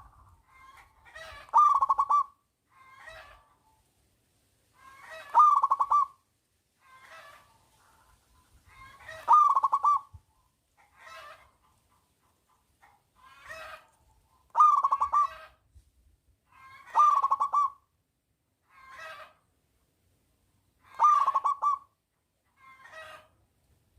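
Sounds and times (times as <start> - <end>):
dove cooing: 1.3 - 2.4, 5.1 - 6.2, 8.8 - 10.2, 14.5 - 15.5, 16.9 - 17.8, 20.9 - 21.9.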